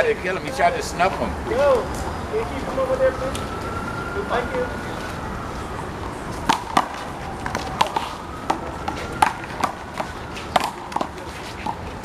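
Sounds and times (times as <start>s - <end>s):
ball bouncing off wall and concrete: 6.4s - 11.8s.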